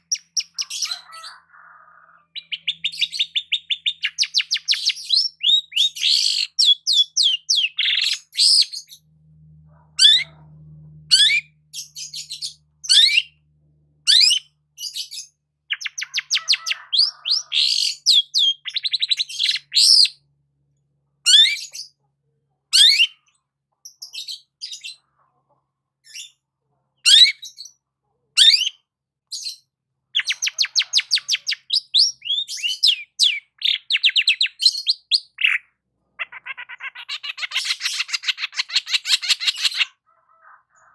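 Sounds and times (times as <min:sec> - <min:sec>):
bird singing: 0:00.0 - 0:20.3, 0:21.3 - 0:22.0, 0:30.2 - 0:40.0.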